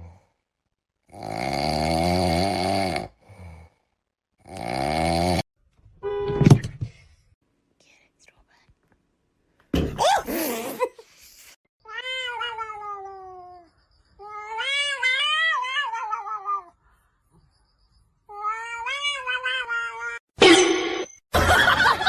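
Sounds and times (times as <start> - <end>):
cat yowling and meowing: 11.8 - 16.8, 18.3 - 20.2.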